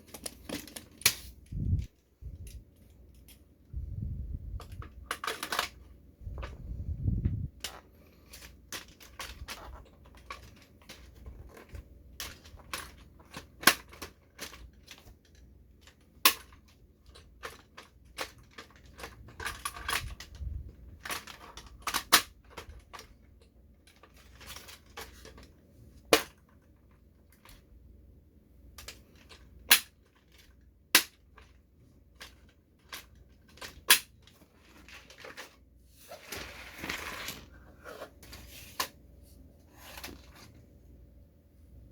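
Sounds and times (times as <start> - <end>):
plastic toy clicks and snaps: 29.6 - 30.0, 30.9 - 31.2, 33.6 - 34.1
rustling: 33.1 - 40.7.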